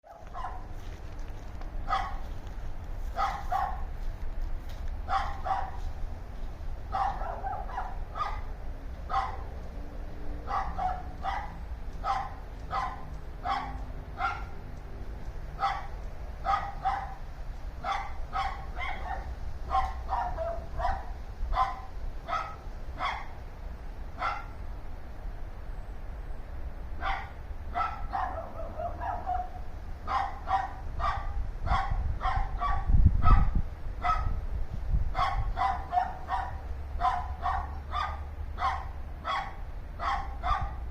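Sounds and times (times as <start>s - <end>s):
dogs barking: 0.1s - 0.8s, 1.8s - 2.3s, 3.1s - 4.0s, 5.0s - 5.9s, 6.9s - 9.6s, 10.4s - 14.6s, 15.5s - 23.4s, 24.2s - 24.6s, 27.0s - 34.4s, 35.1s - 40.9s
steady low rumble: 0.1s - 40.9s.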